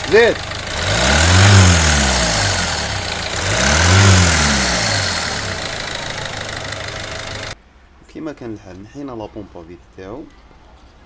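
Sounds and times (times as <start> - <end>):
diesel engine idling and revving: 0.0 - 7.6
engine knocking: 0.0 - 7.6.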